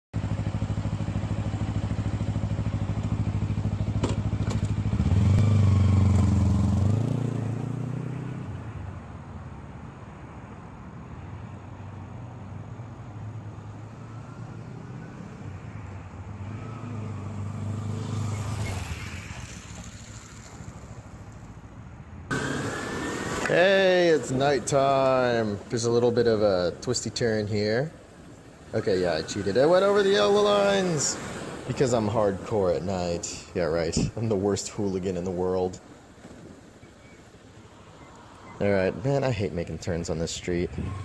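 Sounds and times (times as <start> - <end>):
motorcycle engine revving: 0.2 - 8.6, 13.6 - 21.1, 22.3 - 33.1.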